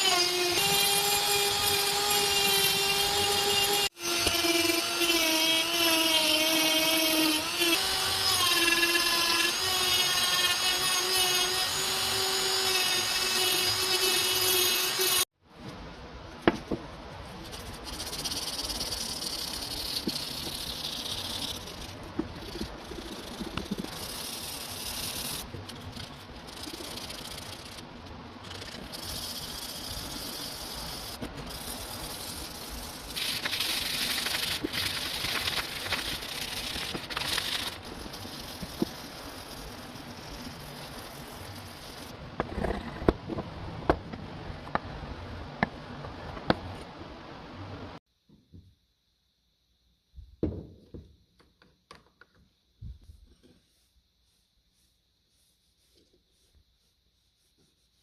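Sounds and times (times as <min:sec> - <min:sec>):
rubbing: 0:17.4 - 0:42.1.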